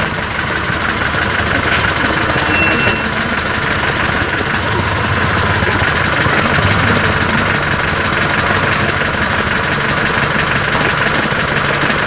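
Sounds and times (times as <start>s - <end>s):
vehicle engine running at low revs: 0.0s - 12.0s.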